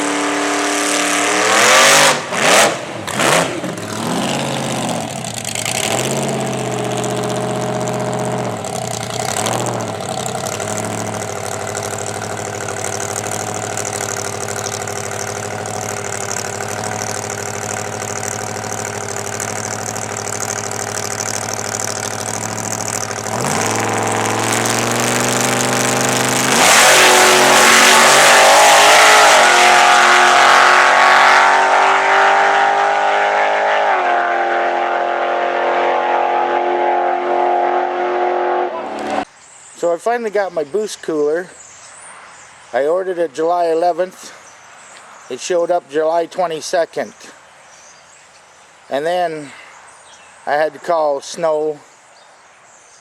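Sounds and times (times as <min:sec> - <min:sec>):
vee eight engine revving: 0:00.0 - 0:39.3.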